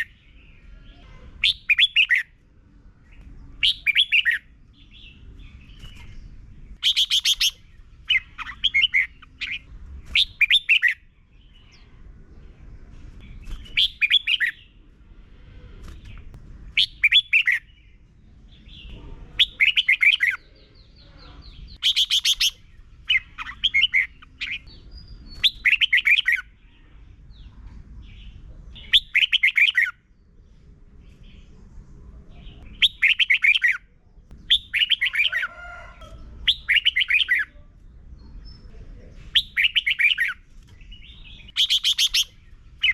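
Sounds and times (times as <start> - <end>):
faint low rumble: 11.0 - 19.6
bird singing whistled phrases: 41.5 - 42.9.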